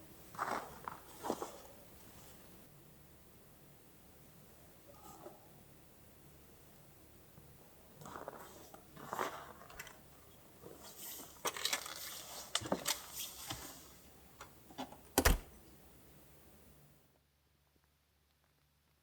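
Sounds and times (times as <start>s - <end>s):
small objects rustling and clinking: 10.7s - 13.3s.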